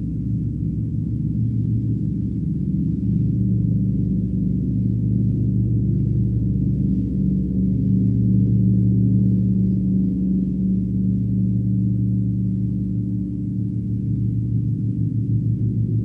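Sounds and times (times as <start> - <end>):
deep gong drone: 0.0 - 16.0.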